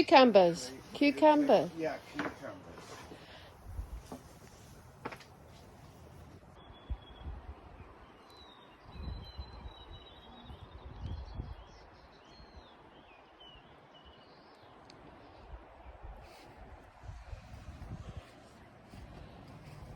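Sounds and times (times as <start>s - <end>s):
small birds chirping: 5.6s - 15.5s.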